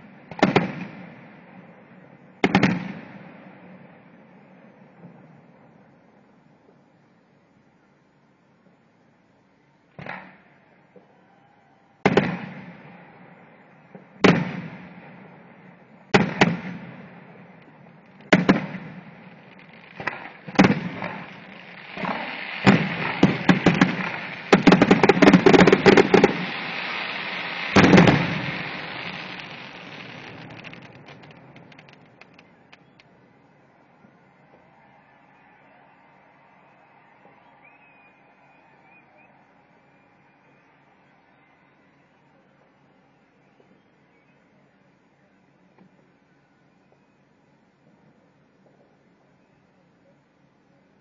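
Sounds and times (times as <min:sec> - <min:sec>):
firework crackling: 0:14.0 - 0:33.1
firework shells bursting: 0:16.2 - 0:33.1.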